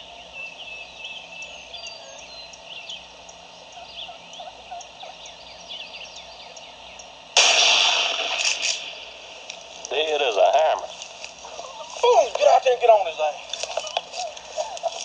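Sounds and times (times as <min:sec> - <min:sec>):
songbird chirps: 0:00.0 - 0:07.4, 0:08.9 - 0:15.0
turkey gobbling quietly: 0:02.0 - 0:07.1, 0:09.9 - 0:15.0.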